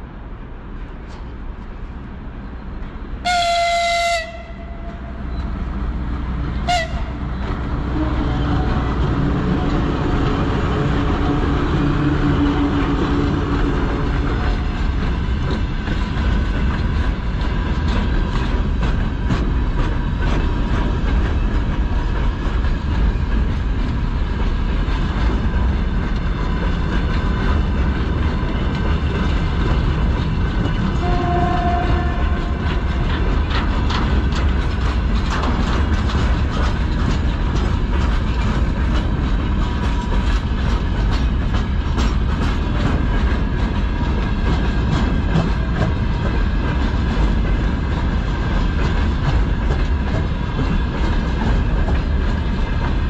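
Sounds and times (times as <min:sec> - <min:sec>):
locomotive rumble: 0:00.0 - 0:53.0
wheels clicking over rail joints: 0:00.8 - 0:53.0
locomotive horn blasts: 0:03.2 - 0:05.3, 0:06.6 - 0:08.6, 0:31.0 - 0:32.8.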